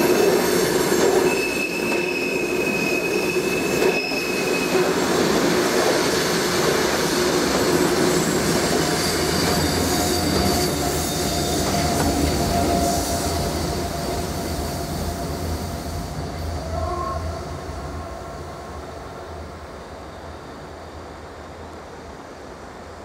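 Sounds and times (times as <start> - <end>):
wheel squeals: 0.0 - 5.0, 8.1 - 15.4
train rumbling: 0.0 - 23.0.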